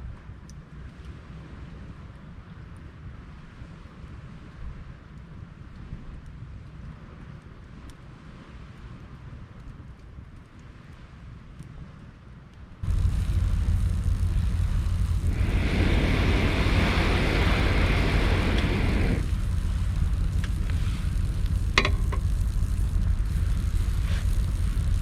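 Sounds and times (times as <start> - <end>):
fire crackles: 12.4 - 25.0
campfire low rumble: 12.5 - 25.0
rushing hiss: 12.8 - 25.0.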